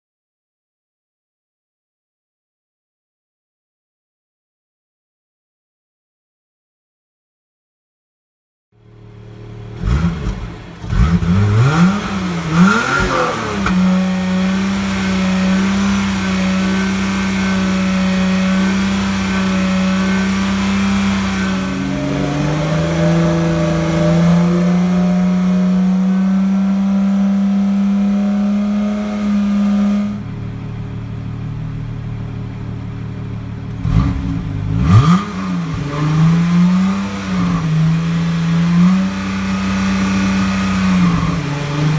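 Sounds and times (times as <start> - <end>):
car engine idling: 8.8 - 41.9
car engine starting: 8.8 - 41.9
car engine revving: 8.9 - 41.9.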